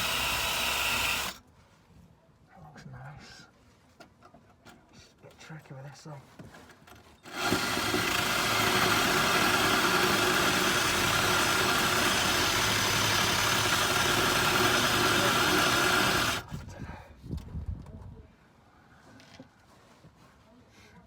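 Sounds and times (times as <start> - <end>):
power tool stripping rust: 0.0 - 1.4, 7.2 - 16.5.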